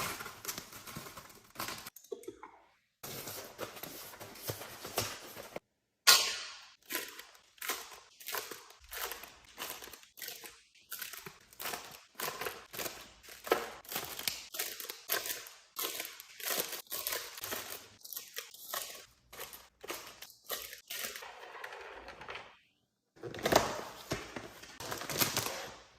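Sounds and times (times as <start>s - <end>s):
groceries clacking and knocking: 0.0s - 2.4s, 6.7s - 22.6s.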